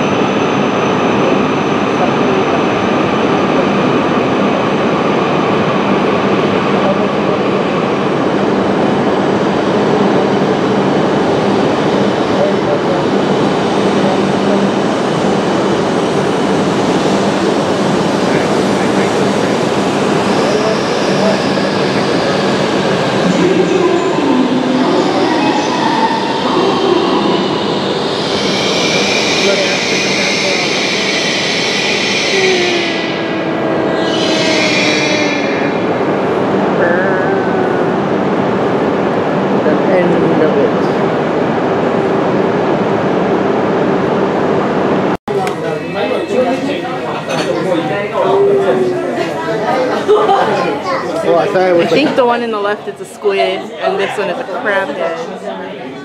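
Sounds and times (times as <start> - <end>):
train rumbling slowly: 0.0 - 56.0
train hiss: 24.5 - 33.5.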